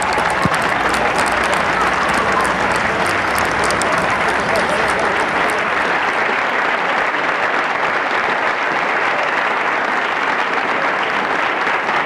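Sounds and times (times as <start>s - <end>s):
spectators clapping: 0.0s - 12.0s.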